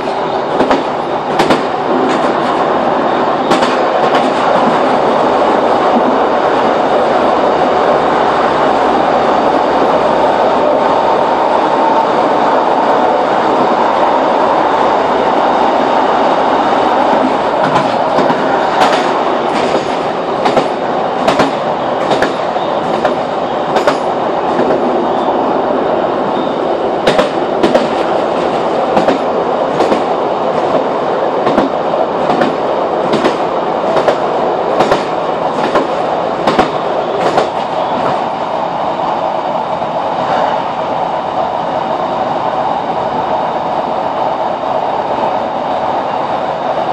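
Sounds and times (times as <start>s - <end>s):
wheels clicking over rail joints: 0.0s - 2.7s, 3.4s - 5.0s, 17.1s - 24.9s, 27.0s - 38.3s
train droning on rails: 0.0s - 46.9s.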